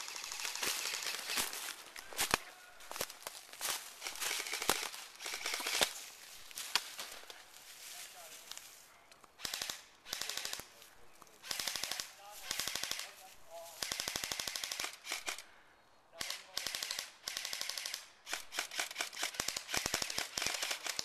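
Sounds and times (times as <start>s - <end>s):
airsoft guns firing bursts: 0.0s - 1.6s, 4.0s - 5.9s, 9.4s - 10.7s, 11.4s - 13.2s, 13.8s - 15.4s, 16.2s - 21.0s.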